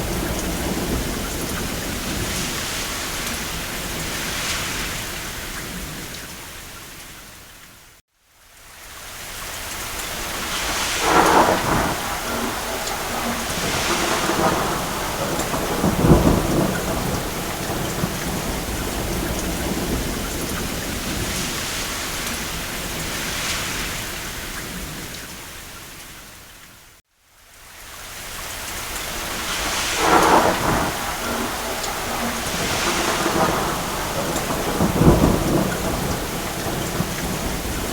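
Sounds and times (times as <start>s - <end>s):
distant thunder rumbles: 0.0s - 6.2s, 10.1s - 25.2s, 29.0s - 37.9s
rain on a cabin roof: 0.0s - 37.9s.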